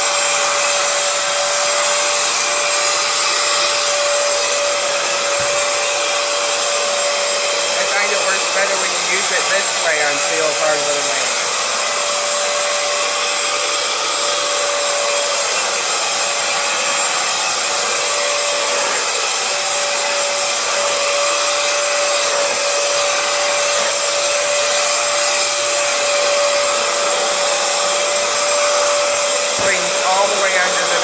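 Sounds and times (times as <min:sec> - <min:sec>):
floor cleaner motor droning: 0:00.0 - 0:31.0.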